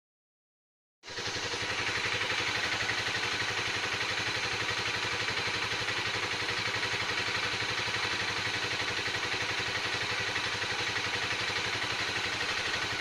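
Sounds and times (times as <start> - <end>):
motorcycle engine idling: 1.1 - 13.0.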